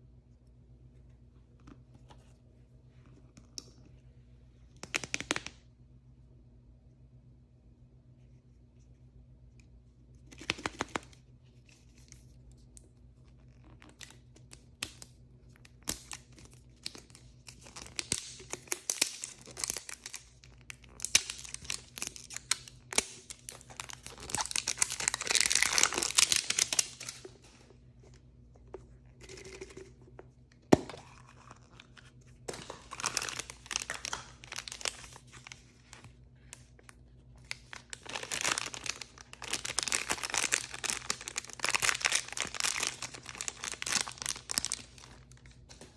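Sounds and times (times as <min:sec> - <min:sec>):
plastic packaging tearing and crinkling: 0:15.8 - 0:27.3, 0:32.5 - 0:35.6, 0:37.4 - 0:45.4.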